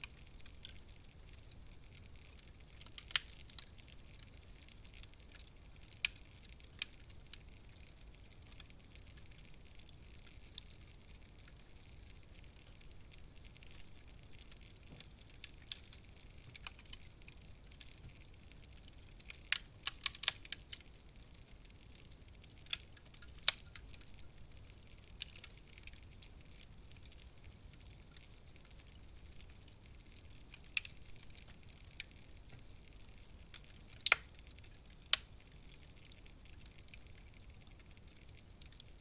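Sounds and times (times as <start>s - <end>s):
faint steady hiss: 0.0s - 39.0s
wood fire crackling and popping: 0.0s - 39.0s.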